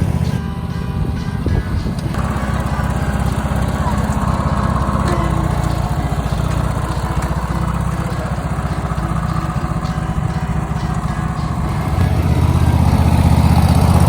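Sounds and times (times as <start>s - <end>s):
lawn mower engine running: 0.0s - 14.0s.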